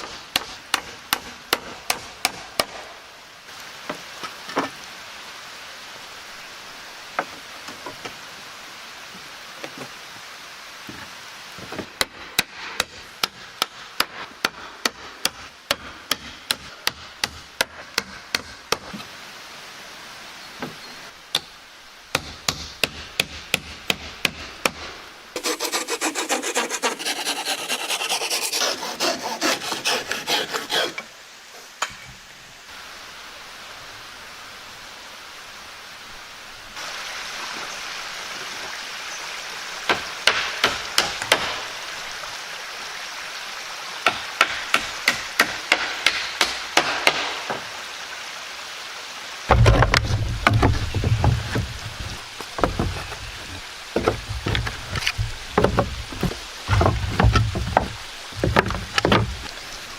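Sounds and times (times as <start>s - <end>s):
rhythmic rubbing on wood: 25.4s - 31.0s, 49.5s - 59.5s.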